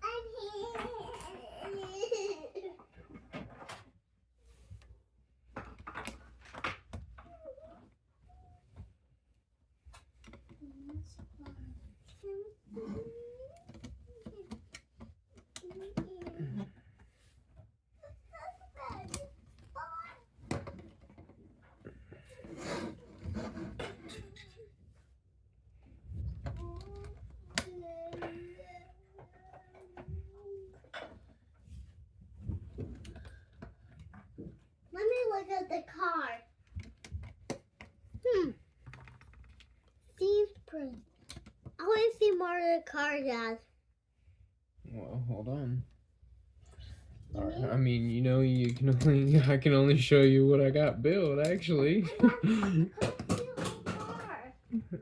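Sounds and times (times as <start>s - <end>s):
child vocalizing and giggling: 0.1s - 2.9s, 52.1s - 55.0s.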